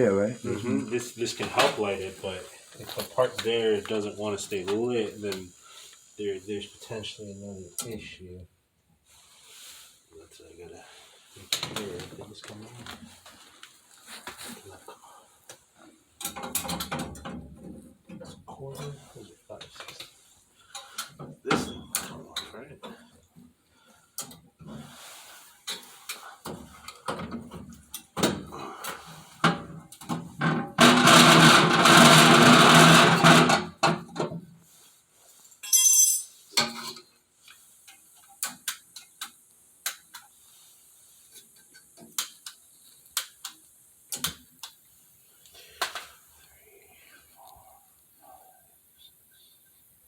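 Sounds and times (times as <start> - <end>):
tools clinking on sheet metal: 35.6 - 37.0.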